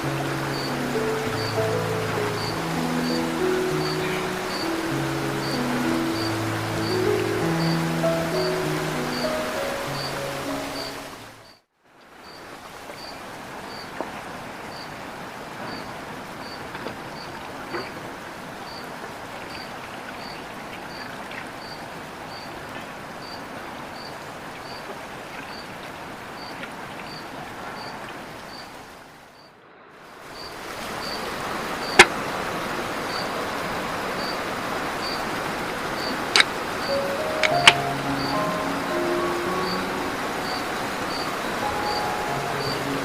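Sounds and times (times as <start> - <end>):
flowing river rushing: 0.0 - 11.6, 12.2 - 43.0.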